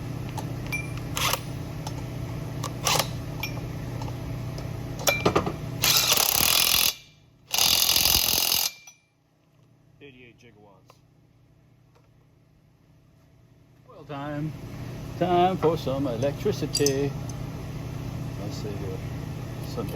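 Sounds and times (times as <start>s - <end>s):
tools clinking: 2.7s - 4.1s, 5.0s - 9.1s, 16.2s - 17.4s
impact driver bursts: 5.8s - 8.9s.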